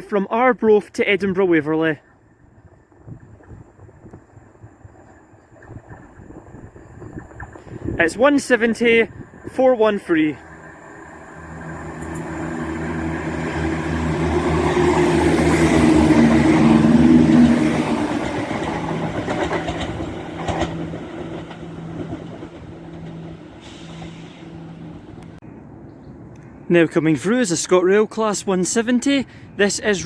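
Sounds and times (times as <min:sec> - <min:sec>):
rail noise: 0:01.7 - 0:26.4
diesel train engine drone: 0:03.7 - 0:25.4.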